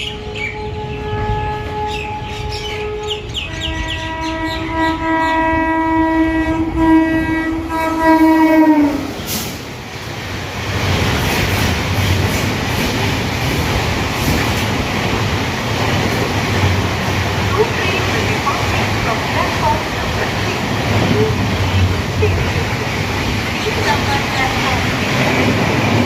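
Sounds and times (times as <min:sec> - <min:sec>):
train horn: 0:00.0 - 0:09.2
train rushing past: 0:00.0 - 0:26.0
wheels clacking over rail joints: 0:10.5 - 0:26.0.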